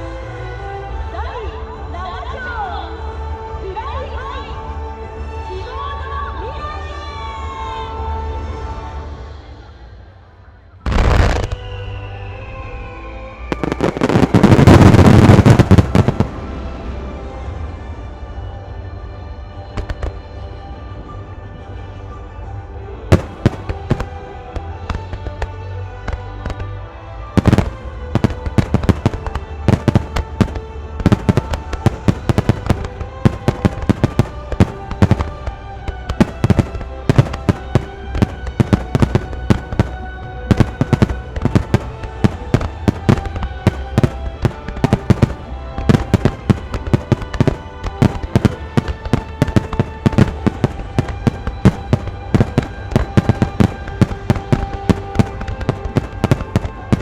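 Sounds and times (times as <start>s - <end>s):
fireworks bursting: 10.9s - 11.6s, 13.5s - 16.5s, 23.1s - 24.3s, 27.4s - 57.0s
music playing: 13.1s - 18.2s, 19.8s - 57.0s.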